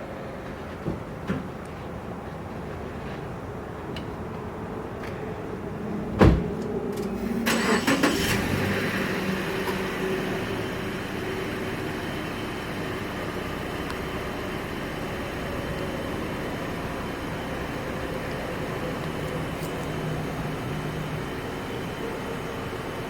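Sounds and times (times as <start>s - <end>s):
loud thump: 6.2s - 6.6s
car engine idling: 6.8s - 23.0s.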